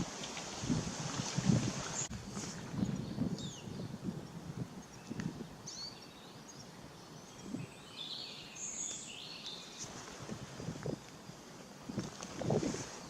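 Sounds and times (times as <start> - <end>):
outdoor rustle: 0.0 - 3.5, 4.1 - 13.0
birds chirping: 2.7 - 9.9.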